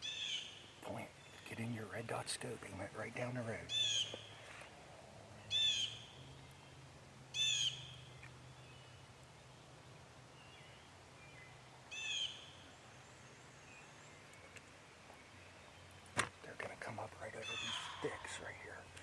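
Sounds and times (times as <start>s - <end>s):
bird calling high notes: 17.4s - 18.5s.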